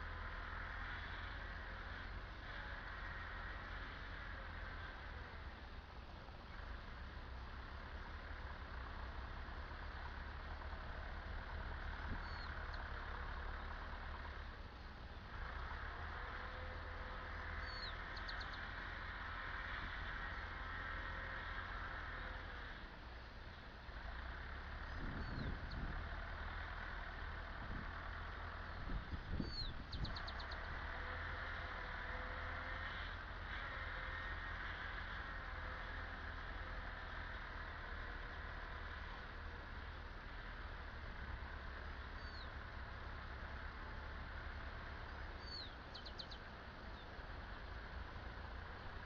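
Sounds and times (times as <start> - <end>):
birds chirping: 0.0 - 49.0
tractor diesel engine: 0.0 - 49.0
steady low rumble: 3.6 - 32.4
bird trill: 12.2 - 12.7, 17.6 - 18.7, 25.1 - 25.9, 29.4 - 30.7, 42.2 - 42.5, 45.4 - 47.1.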